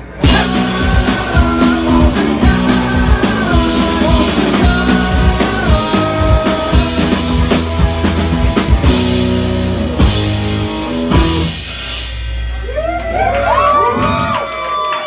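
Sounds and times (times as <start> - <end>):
person singing: 0.1 - 7.9
electric guitar: 0.1 - 14.8
drum kit hits: 0.2 - 12.3.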